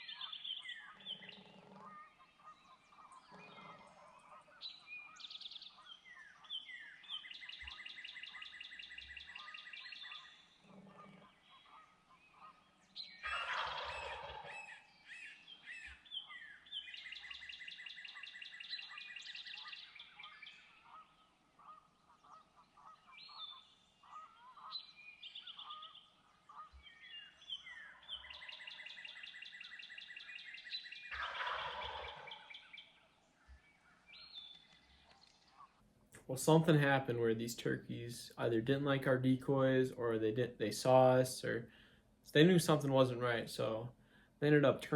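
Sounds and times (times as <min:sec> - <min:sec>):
birds high rapid trills: 0:00.0 - 0:33.1
wild turkey gobbling: 0:00.0 - 0:43.8.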